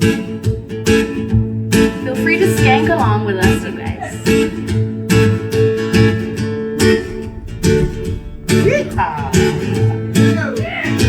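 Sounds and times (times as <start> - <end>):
sustained bass notes: 6.3 - 10.2.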